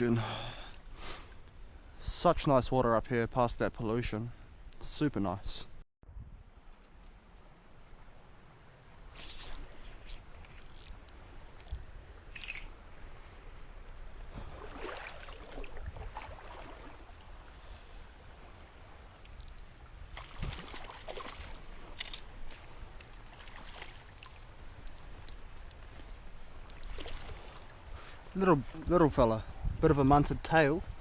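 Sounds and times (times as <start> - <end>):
stream water splashing: 14.0 - 29.0
wind on microphone: 14.2 - 20.9, 28.8 - 31.0.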